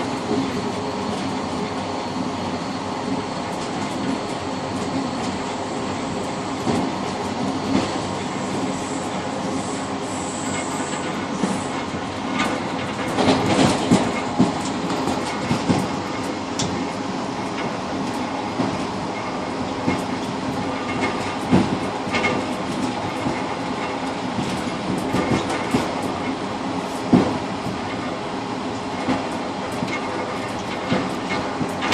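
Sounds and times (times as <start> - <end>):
wheels rumbling on rail: 0.0 - 31.9
wheels clacking over rail joints: 11.0 - 26.4.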